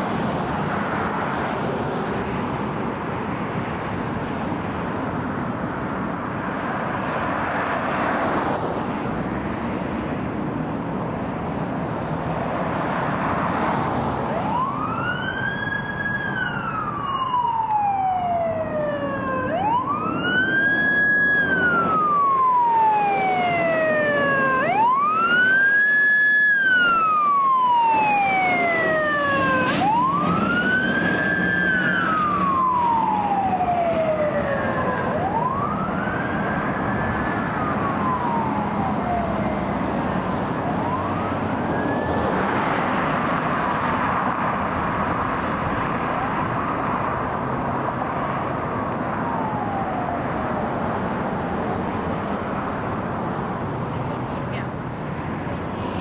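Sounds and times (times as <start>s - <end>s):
truck engine rumble: 8.6s - 25.8s, 26.7s - 56.0s
emergency siren wailing: 10.9s - 56.0s.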